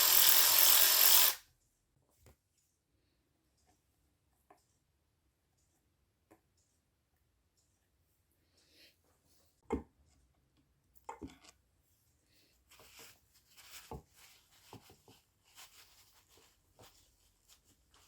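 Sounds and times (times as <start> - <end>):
small scrapes and knocks: 12.7 - 18.0.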